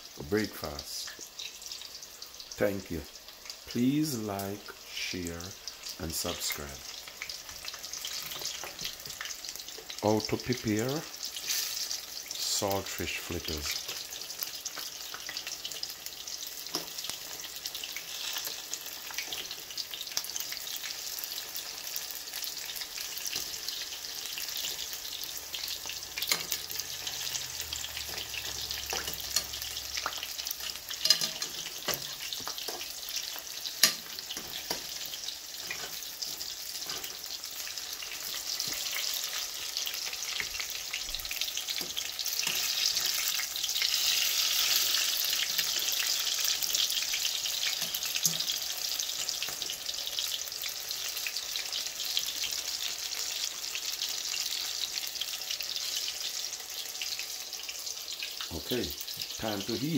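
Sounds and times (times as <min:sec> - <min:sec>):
fritters sizzling in hot oil: 0:00.0 - 0:59.9
metal fork clicking on pot: 0:31.0 - 0:32.1.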